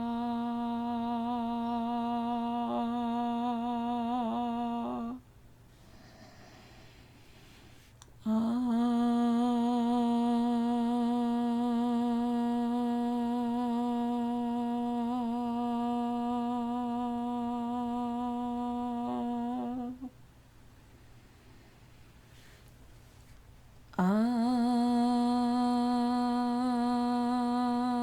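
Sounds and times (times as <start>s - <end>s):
person chanting long ah: 0.0s - 5.2s, 8.2s - 20.2s, 24.0s - 28.0s.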